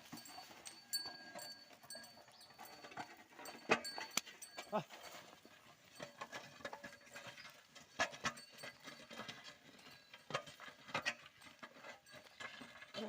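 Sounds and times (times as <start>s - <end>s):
hooves and plough knocking: 0.0s - 13.0s.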